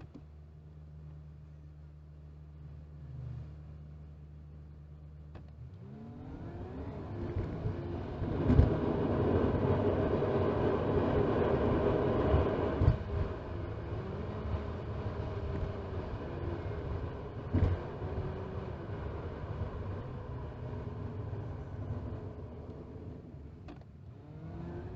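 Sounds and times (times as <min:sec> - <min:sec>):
road noise inside car: 0:00.0 - 0:24.9
car engine accelerating: 0:02.2 - 0:04.5, 0:05.3 - 0:24.9.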